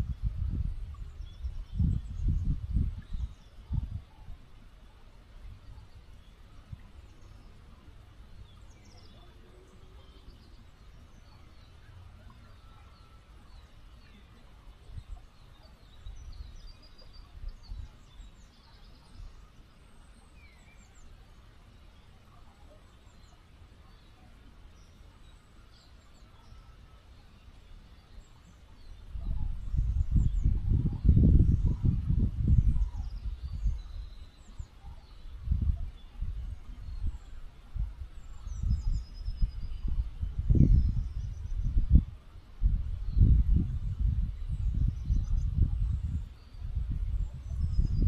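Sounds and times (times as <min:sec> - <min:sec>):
faint bird chirps: 0:00.0 - 0:42.2, 0:42.9 - 0:48.0
small river flowing: 0:03.0 - 0:29.7.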